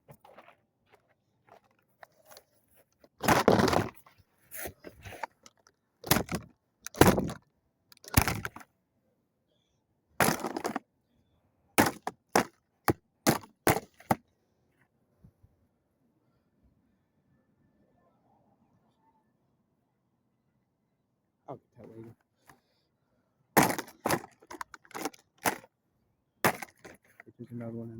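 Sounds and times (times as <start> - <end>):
plastic toy being smashed: 3.2 - 4.0, 5.1 - 7.4, 8.0 - 8.6, 10.2 - 10.8, 11.8 - 12.6, 13.3 - 14.2, 23.6 - 25.7, 26.4 - 27.2
plastic cracking and breaking: 5.1 - 7.4, 8.0 - 8.6, 10.2 - 10.8, 23.6 - 25.7, 26.5 - 27.2.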